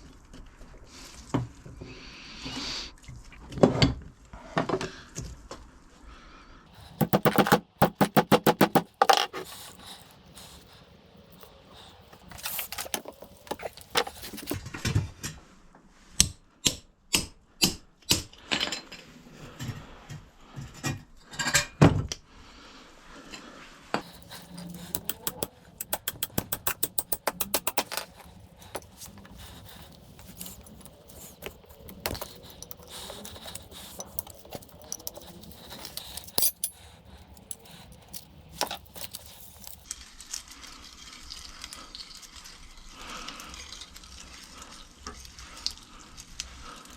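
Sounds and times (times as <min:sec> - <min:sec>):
rapid even clicks: 0:24.0 - 0:39.8
metallic knocks and clinks: 0:24.1 - 0:39.8.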